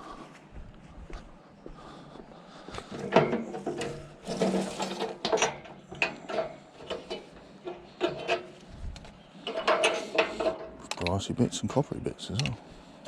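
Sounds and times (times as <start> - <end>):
scrap metal clanking and rattling: 2.9 - 8.7, 9.4 - 11.1.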